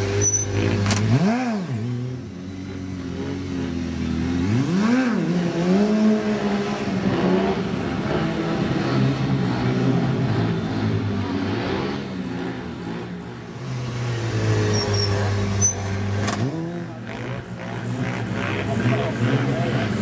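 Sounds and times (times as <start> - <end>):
engine revving: 0.0 - 20.0
motorcycle engine running: 14.0 - 20.0.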